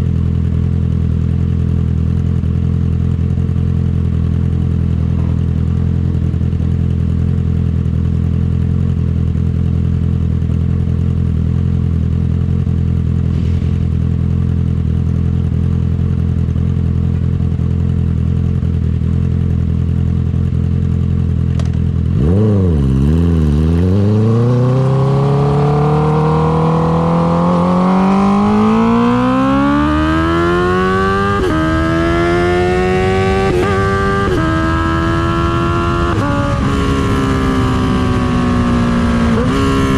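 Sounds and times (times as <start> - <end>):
motorcycle engine idling: 0.0 - 13.3, 13.9 - 22.2
motorcycle revving and accelerating: 0.0 - 39.9.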